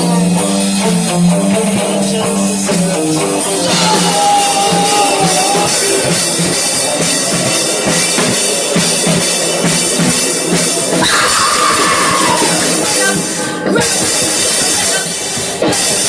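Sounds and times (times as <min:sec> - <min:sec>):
rock band playing: 0:00.0 - 0:16.0
kick and snare drum beat: 0:03.7 - 0:10.8.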